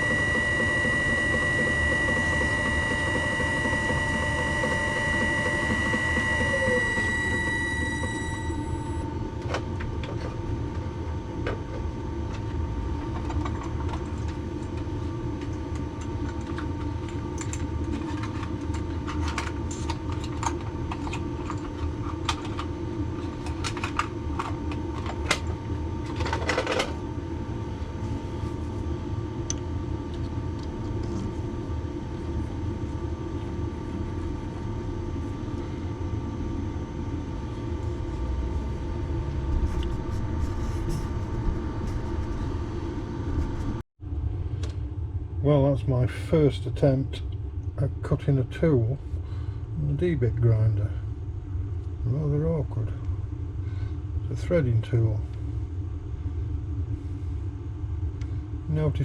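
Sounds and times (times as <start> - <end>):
electric motor humming: 0.0 - 9.1, 37.7 - 43.8.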